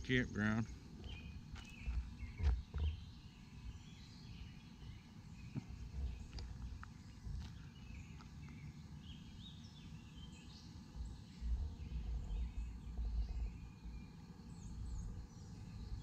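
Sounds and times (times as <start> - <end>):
birds chirping: 0.0 - 16.0
low rumble on microphone: 5.4 - 9.2, 10.2 - 16.0.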